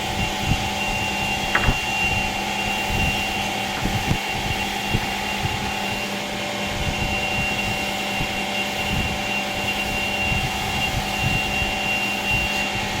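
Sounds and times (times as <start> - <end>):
woodworking machine motors humming: 0.2 - 13.0
dull low knocks: 1.5 - 2.1.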